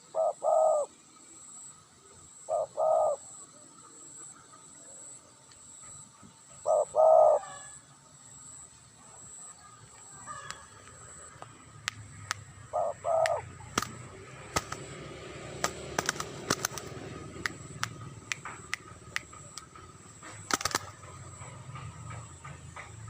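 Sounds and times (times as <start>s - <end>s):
dove cooing: 0.0s - 1.0s, 2.4s - 4.2s, 6.6s - 7.8s, 12.2s - 21.8s
sharp clicks: 10.5s - 12.5s, 13.2s - 15.0s, 15.6s - 21.5s.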